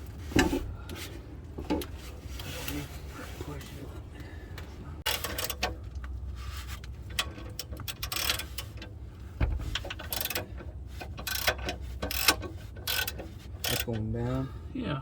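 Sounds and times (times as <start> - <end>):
car jack clicking and rasping: 5.0 - 6.1, 6.8 - 14.1
heavy thump: 9.4 - 9.8.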